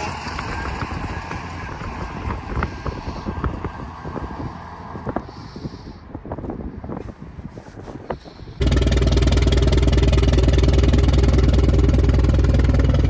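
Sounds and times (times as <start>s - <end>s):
engine running loud: 0.0s - 5.3s, 8.6s - 13.0s
wind noise: 0.0s - 13.0s.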